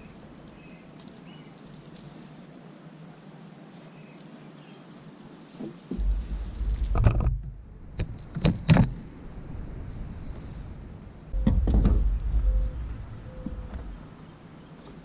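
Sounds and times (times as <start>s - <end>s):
knocks and clatters: 5.9s - 9.0s, 11.4s - 12.4s
low rumble: 6.0s - 8.3s, 8.9s - 14.3s.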